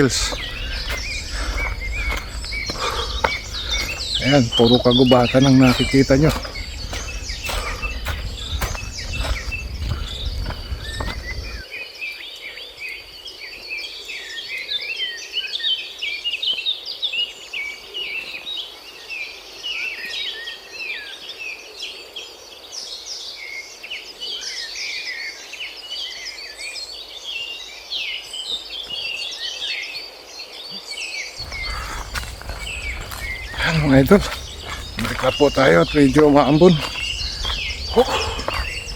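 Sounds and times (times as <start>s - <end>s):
birds chirping: 0.0s - 11.6s, 31.4s - 38.9s
high insect drone: 0.0s - 11.6s, 31.4s - 38.9s.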